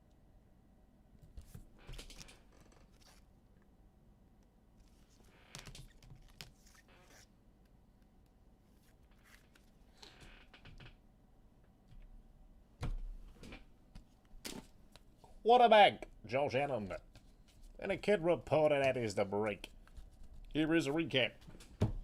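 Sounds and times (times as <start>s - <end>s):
soft clicks and rustles: 4.4s - 11.0s.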